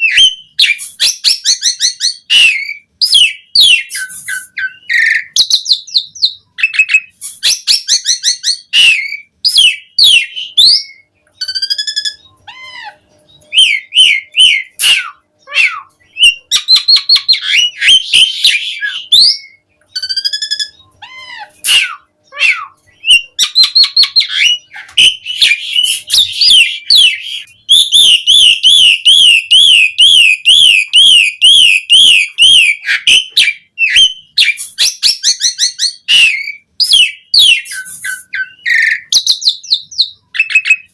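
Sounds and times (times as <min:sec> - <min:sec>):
starling singing whistles and chatter: 0:00.0 - 0:40.9
fast wavering bird trill: 0:06.6 - 0:39.6.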